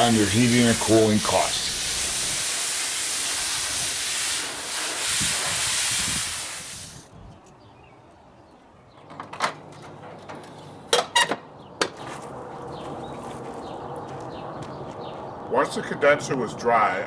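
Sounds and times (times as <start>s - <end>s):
garden hose spray hissing: 0.0s - 7.1s.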